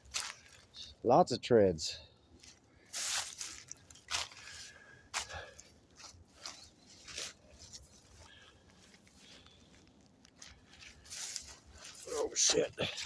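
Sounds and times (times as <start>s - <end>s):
footsteps crunching on rough ground: 0.0s - 1.0s, 2.3s - 13.0s.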